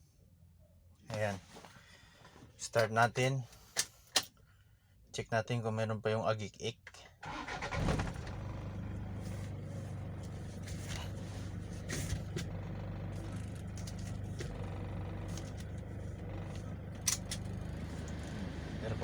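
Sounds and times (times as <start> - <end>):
car engine starting and idling: 7.2 - 19.0.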